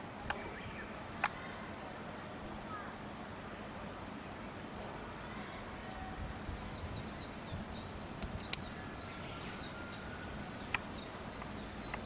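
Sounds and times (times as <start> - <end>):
outdoor background noise: 0.0 - 12.0
small bird chirping: 6.5 - 12.0
sharp clicks: 8.2 - 8.8.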